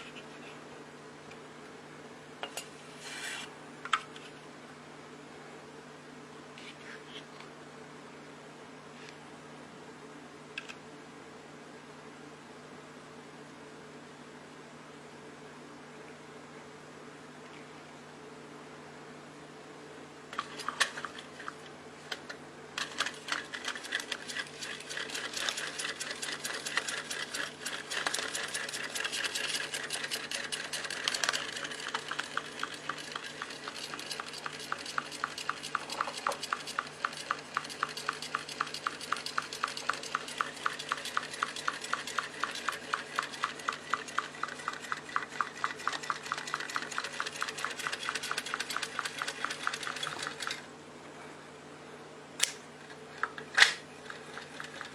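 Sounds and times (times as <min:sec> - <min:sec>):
small engine mechanism clicking: 0:22.8 - 0:50.6, 0:53.6 - 0:54.9.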